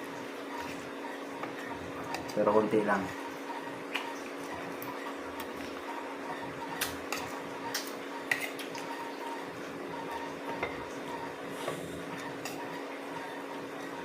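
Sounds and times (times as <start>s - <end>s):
steady low hum: 0.0s - 14.0s
cutlery clinking against a plate: 6.8s - 8.9s.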